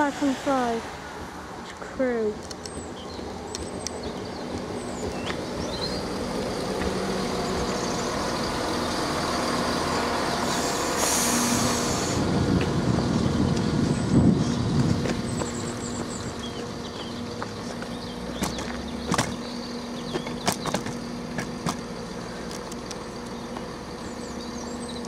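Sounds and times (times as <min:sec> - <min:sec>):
diesel train engines humming: 0:00.0 - 0:25.0
wheel and rail rumble: 0:00.0 - 0:25.0
air brakes hissing: 0:10.4 - 0:12.3.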